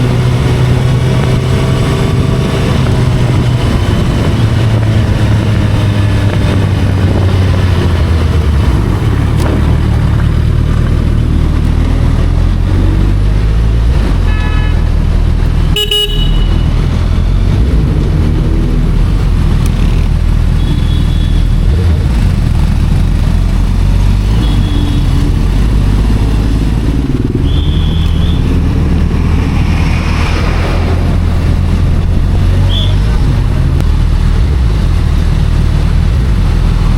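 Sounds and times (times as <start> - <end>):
motorcycle engine shifting gears: 0.0 - 36.9
vehicle horn toots: 14.3 - 14.9, 15.7 - 16.8, 20.6 - 21.5, 24.4 - 25.1, 27.4 - 28.5.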